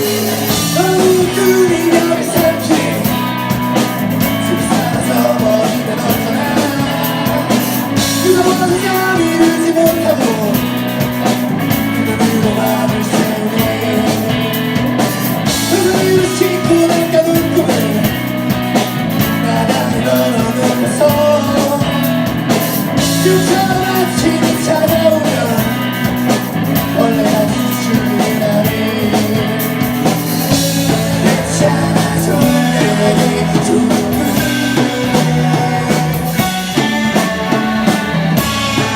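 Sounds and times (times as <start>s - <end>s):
bass guitar: 0.0s - 38.9s
drum kit: 0.0s - 38.9s
electric guitars: 0.0s - 38.9s
person singing lead vocal: 0.0s - 38.9s.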